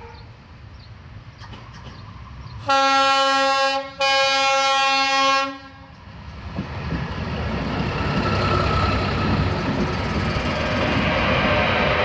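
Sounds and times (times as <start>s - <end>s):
railbus rumble and rattle: 0.0s - 12.0s
railbus horn: 2.6s - 6.0s.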